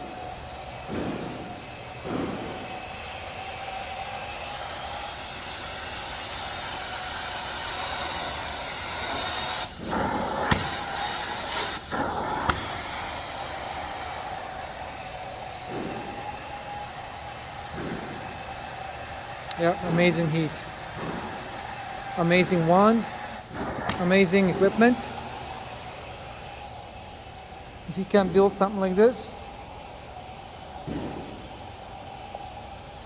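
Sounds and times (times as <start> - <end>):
carpet cleaning wand hissing: 0.0 - 25.6.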